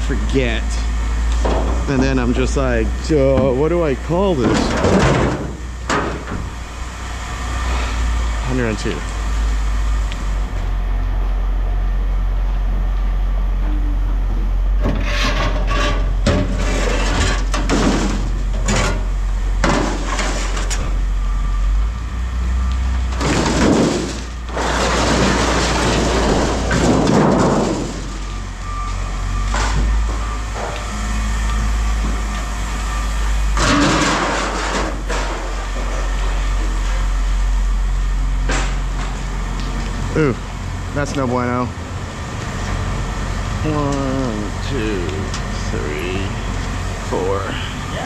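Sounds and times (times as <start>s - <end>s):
vehicle engine running: 0.0s - 14.9s, 17.2s - 48.0s
scrap metal clattering: 4.4s - 6.4s, 14.8s - 20.9s, 23.2s - 28.4s, 33.6s - 36.1s.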